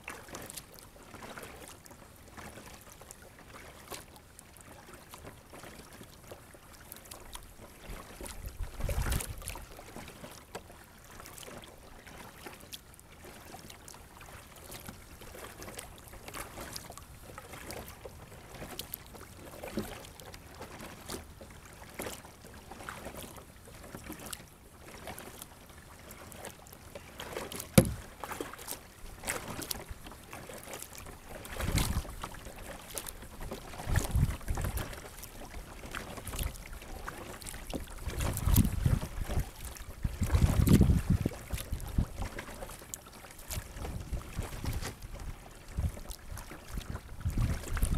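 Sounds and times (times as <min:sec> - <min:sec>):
water splashing and lapping: 0:00.0 - 0:47.9
knocks against kayak hull: 0:27.7 - 0:28.1.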